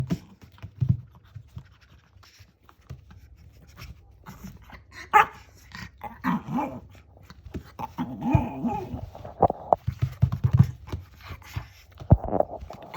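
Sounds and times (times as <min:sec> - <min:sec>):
dog growl-like grumbles: 0:05.8 - 0:07.0, 0:07.8 - 0:09.8.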